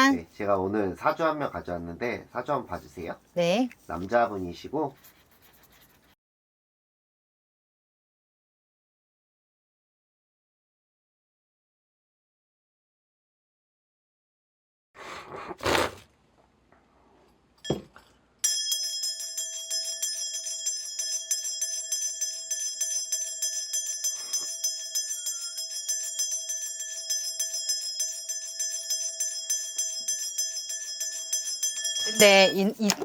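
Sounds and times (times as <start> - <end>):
ritual bells jingling: 18.4 - 33.0.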